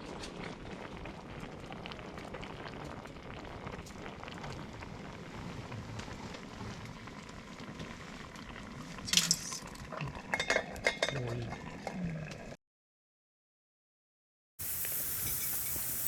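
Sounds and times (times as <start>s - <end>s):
campfire crackling and sizzling: 0.0s - 10.3s, 14.6s - 16.0s
scrape or clink: 15.2s - 15.8s.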